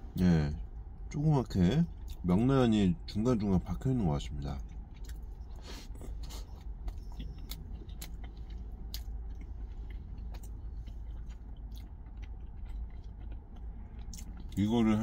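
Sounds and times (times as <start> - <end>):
man chewing a sandwich: 1.9 - 2.3, 4.2 - 15.0.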